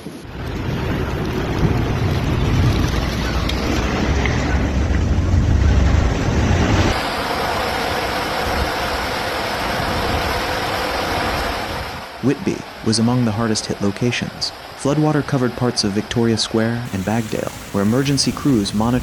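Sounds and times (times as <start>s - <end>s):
rushing water: 6.9s - 12.8s, 16.8s - 19.0s.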